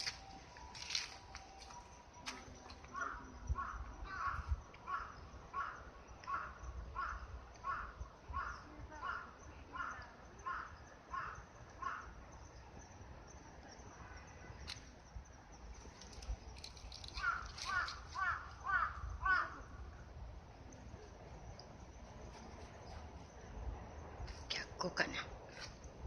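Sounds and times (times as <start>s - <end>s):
crow cawing: 2.9s - 12.2s, 17.1s - 19.7s.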